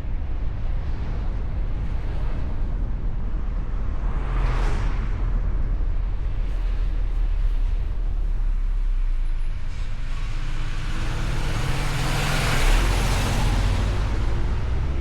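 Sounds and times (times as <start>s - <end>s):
car road and engine rumble: 0.0s - 15.0s
vehicle passing close: 10.1s - 15.0s.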